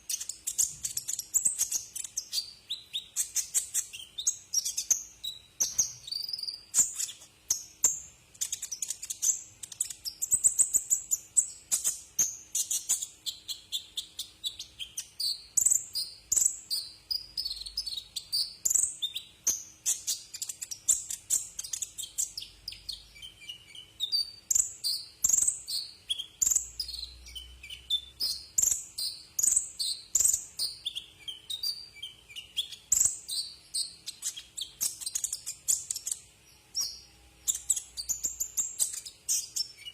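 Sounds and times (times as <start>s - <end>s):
bird singing high sharp chirps: 0.0s - 39.9s.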